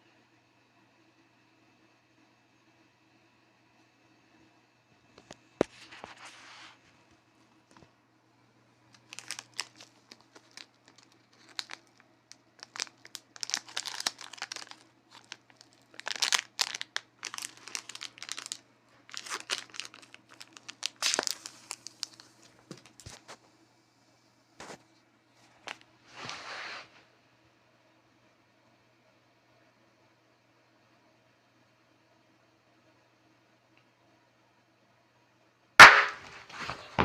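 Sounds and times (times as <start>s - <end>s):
crinkly material rustling: 8.9s - 23.4s.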